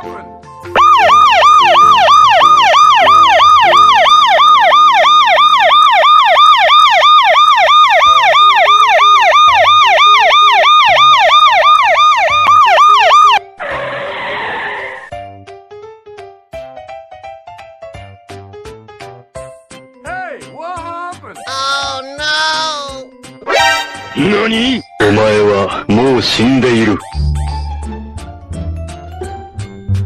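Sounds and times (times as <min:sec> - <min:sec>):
electronic yelp siren: 0:00.8 - 0:15.1, 0:23.5 - 0:25.2.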